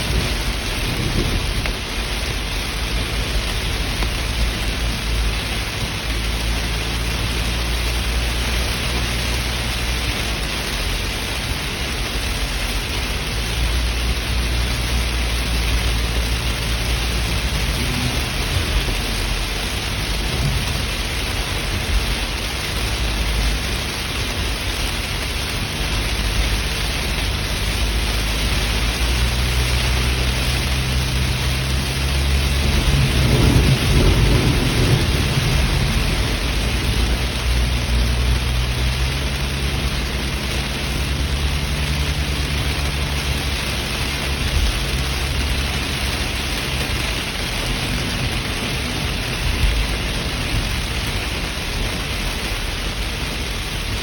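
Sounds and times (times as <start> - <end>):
deep low rumble: 0.0 - 54.0
heavy rain: 0.0 - 54.0.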